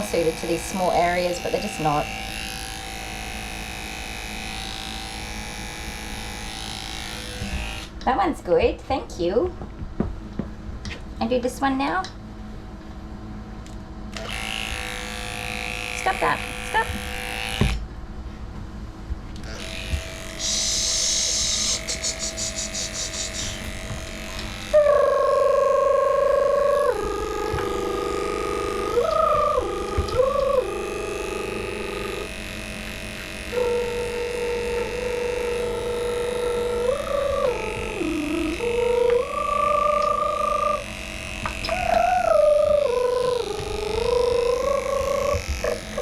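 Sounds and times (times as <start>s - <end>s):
electric clipper humming: 0.0s - 8.1s, 13.6s - 17.9s, 19.3s - 46.0s
high-pitched whine: 19.4s - 46.0s
high squeaks: 41.6s - 46.0s.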